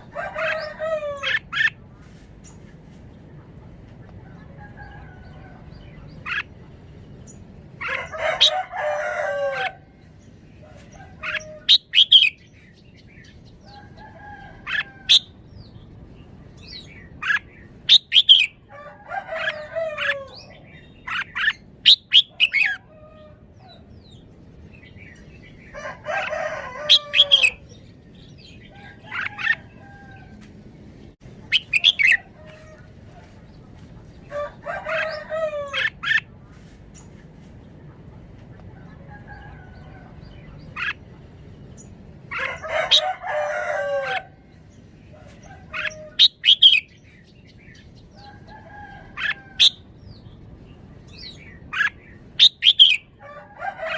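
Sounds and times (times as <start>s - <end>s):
rooster crowing: 0.0s - 1.6s, 7.8s - 9.9s, 18.7s - 20.5s, 25.7s - 27.6s, 28.7s - 30.5s, 34.3s - 36.0s, 42.3s - 44.4s, 52.7s - 53.9s.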